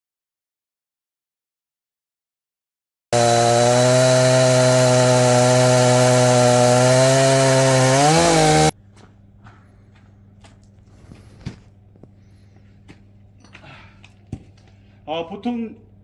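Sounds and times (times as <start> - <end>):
small engine running: 3.2 - 8.7.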